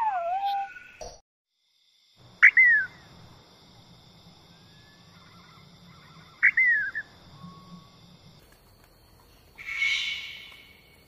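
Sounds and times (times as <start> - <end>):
faint high background drone: 1.6 - 10.9
bird calling with slurred whistle: 9.6 - 10.7.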